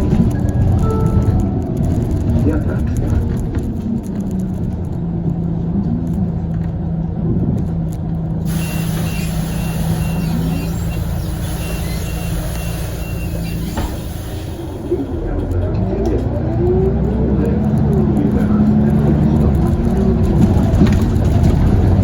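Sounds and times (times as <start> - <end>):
bus drivetrain humming: 0.0 - 22.0
high beep: 0.8 - 1.6
hiss: 8.5 - 15.2.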